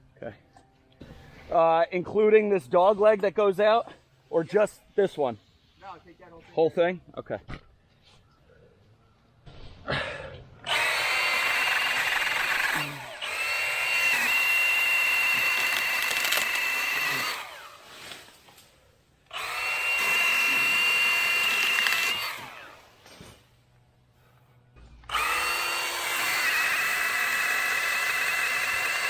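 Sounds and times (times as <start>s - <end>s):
battery saw whining: 10.6s - 18.6s, 19.2s - 23.2s, 25.0s - 29.0s.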